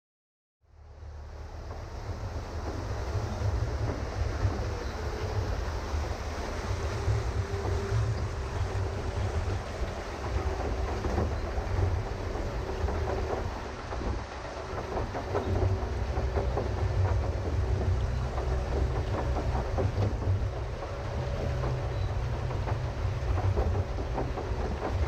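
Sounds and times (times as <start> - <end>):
pedal boat rumble: 0.6 - 25.0
paddle wheel churning water: 0.7 - 25.0
pedal drive clatter: 6.9 - 25.0.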